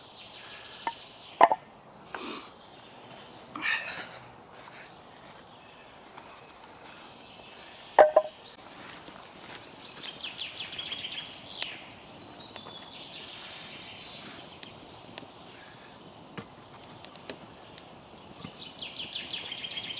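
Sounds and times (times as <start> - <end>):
songbird chirping: 0.0 - 19.9
wood knocking: 1.4 - 1.6, 8.0 - 8.3.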